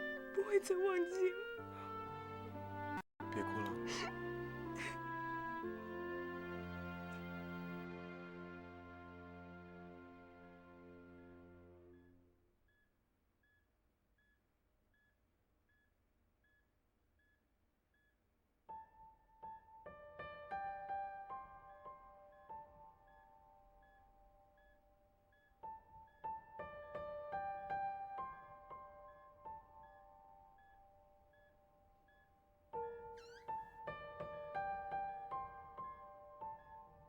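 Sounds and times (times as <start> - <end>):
gentle piano melody: 0.0 - 11.1, 19.0 - 37.0.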